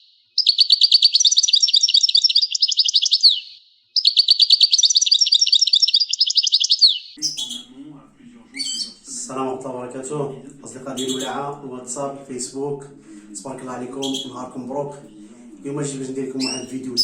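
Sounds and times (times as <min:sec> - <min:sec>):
songbird twittering: 0:00.0 - 0:07.9, 0:08.5 - 0:09.2, 0:10.6 - 0:12.0, 0:13.4 - 0:14.8, 0:15.9 - 0:17.0.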